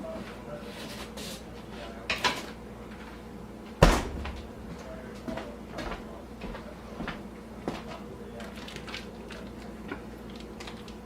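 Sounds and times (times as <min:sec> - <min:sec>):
loud sharp bang: 0:03.8 - 0:04.9.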